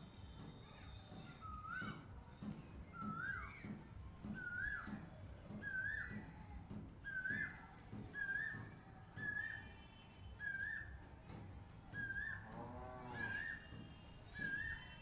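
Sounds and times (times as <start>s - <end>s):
bird whistled calls: 0.6s - 2.0s, 2.9s - 3.7s, 4.4s - 6.3s, 7.0s - 9.8s, 10.4s - 11.0s, 11.9s - 15.0s.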